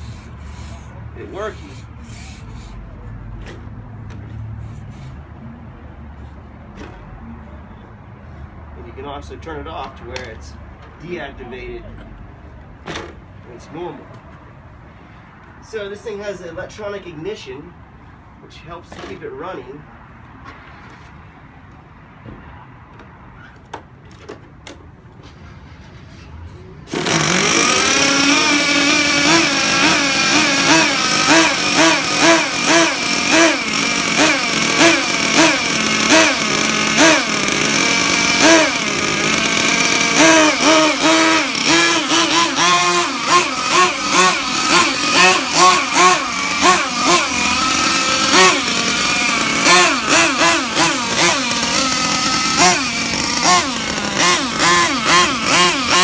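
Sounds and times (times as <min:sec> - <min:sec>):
small two-stroke engine revving: 0:00.0 - 0:03.0, 0:26.9 - 0:56.0.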